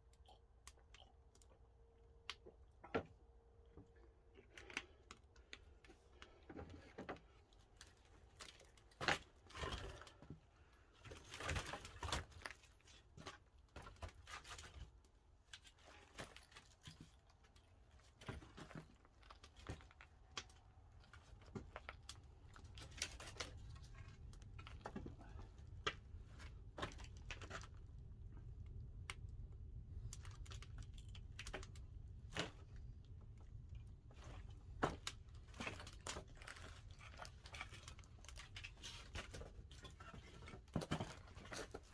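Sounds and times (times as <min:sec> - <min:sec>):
firewood crackling and popping: 0:16.2 - 0:40.2.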